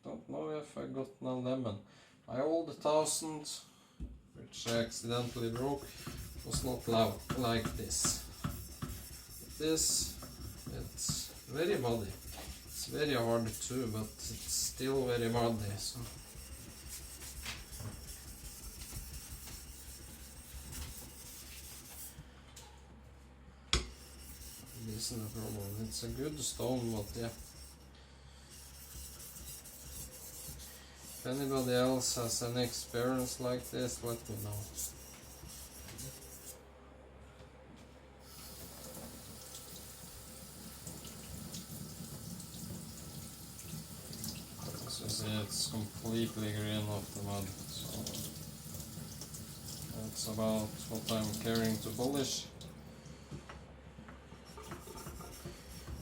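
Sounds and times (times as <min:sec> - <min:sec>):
blade scraping on whetstone: 0:05.3 - 0:22.1, 0:23.9 - 0:27.8, 0:28.5 - 0:36.6
water running from a tap: 0:38.3 - 0:52.7.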